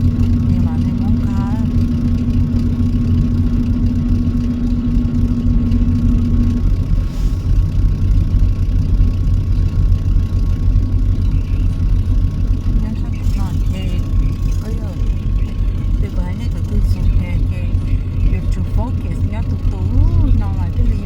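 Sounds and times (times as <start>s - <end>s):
steady hum: 0.0s - 21.0s
truck engine droning: 0.0s - 21.0s.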